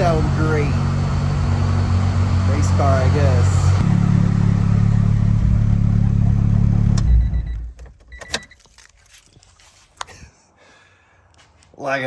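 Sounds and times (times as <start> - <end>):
car engine idling with rattle: 0.0 - 7.6.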